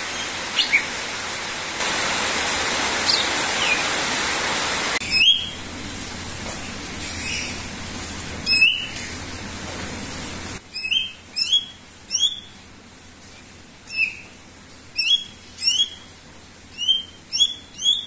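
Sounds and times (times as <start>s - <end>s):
steady hiss: 0.0s - 11.4s
bird whistling calls: 0.1s - 0.9s, 5.0s - 5.6s, 8.5s - 9.0s, 10.7s - 12.5s, 13.9s - 14.3s, 15.0s - 16.1s, 16.8s - 18.0s.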